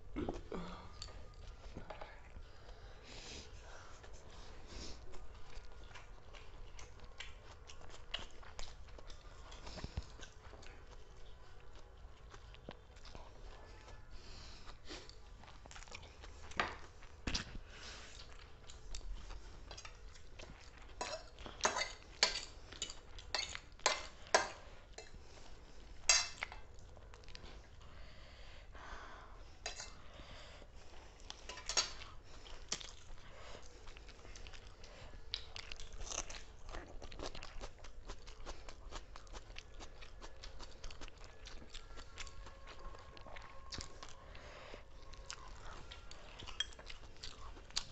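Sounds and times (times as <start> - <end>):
chewing: 3.4 - 27.9, 29.4 - 47.9
cutlery clinking on plates: 21.0 - 25.2, 26.0 - 26.6, 31.4 - 32.0.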